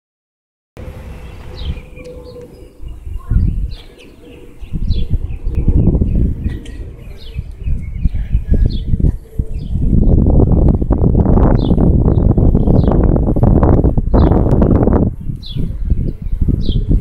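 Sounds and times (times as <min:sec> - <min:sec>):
low rumble: 0:00.8 - 0:17.0
small birds chirping: 0:01.0 - 0:10.3, 0:14.1 - 0:17.0.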